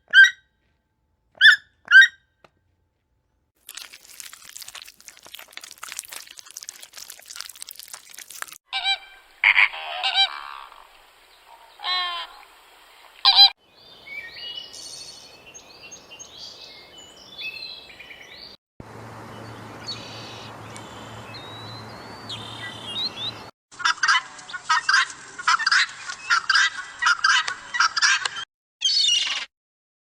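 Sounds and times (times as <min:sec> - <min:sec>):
birds chirping: 0:13.7 - 0:23.5.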